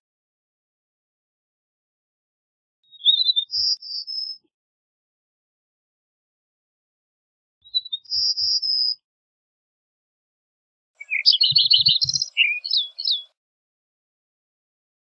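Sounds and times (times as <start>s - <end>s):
songbird trilling and warbling: 2.9s - 4.5s, 7.6s - 9.0s, 11.0s - 13.4s.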